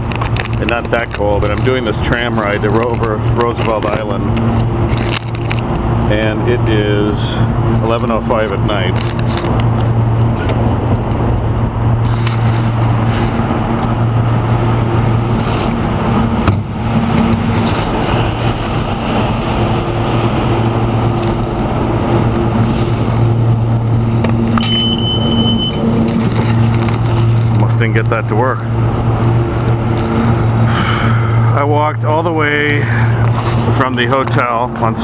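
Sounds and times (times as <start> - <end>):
city street traffic: 0.0 - 35.0
low hum: 0.0 - 35.0
short high-pitched beep: 24.6 - 25.9.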